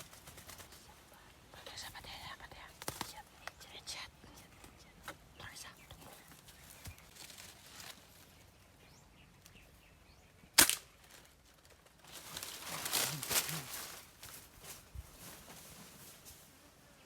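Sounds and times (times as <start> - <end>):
rustling: 6.0 - 8.4, 10.6 - 16.6.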